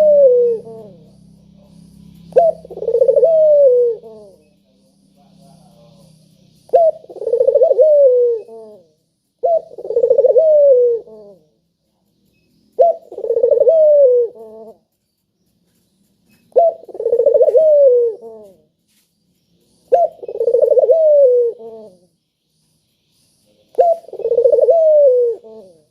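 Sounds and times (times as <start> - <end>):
dove cooing: 0.0 - 4.6, 5.4 - 11.6, 12.7 - 15.0, 16.4 - 18.7, 19.8 - 22.1, 23.6 - 25.9.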